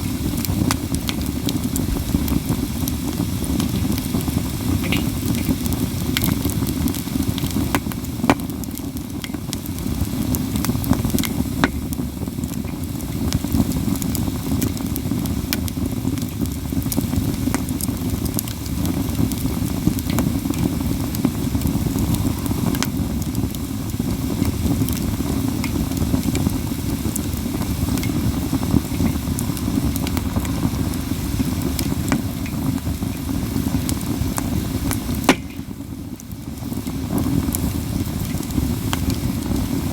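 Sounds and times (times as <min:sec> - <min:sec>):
campfire wood crackling and popping: 0:00.0 - 0:39.9
low rumble: 0:27.6 - 0:33.0.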